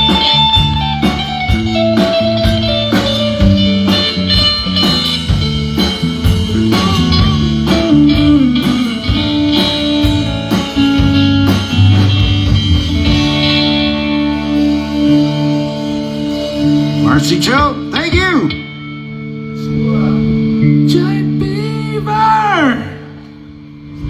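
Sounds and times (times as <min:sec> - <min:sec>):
drum kit: 0:00.0 - 0:18.9
bass guitar: 0:00.0 - 0:24.0
electric guitar lines: 0:00.0 - 0:24.0.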